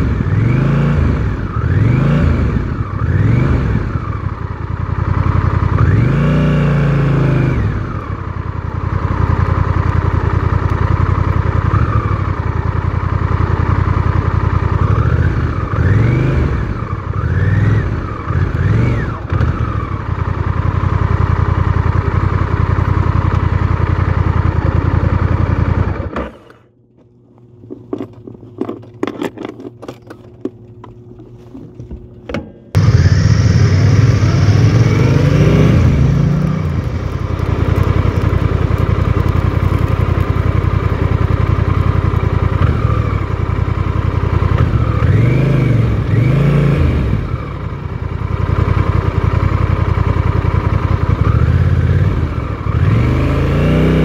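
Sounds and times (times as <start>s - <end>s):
motorcycle engine revving: 0.0s - 26.7s, 32.7s - 54.0s.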